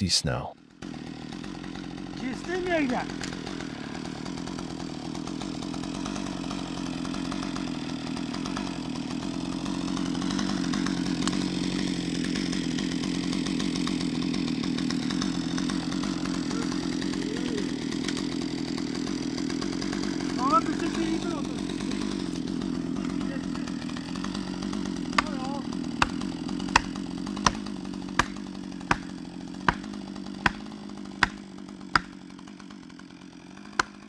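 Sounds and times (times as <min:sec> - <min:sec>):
chainsaw cutting log: 0:00.6 - 0:34.0.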